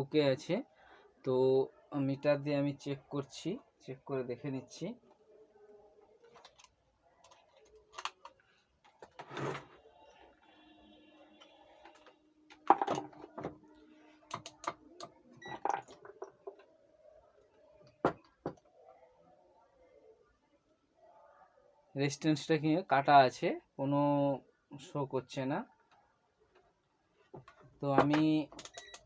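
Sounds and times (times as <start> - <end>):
resistor being handled: 6.3 - 9.3.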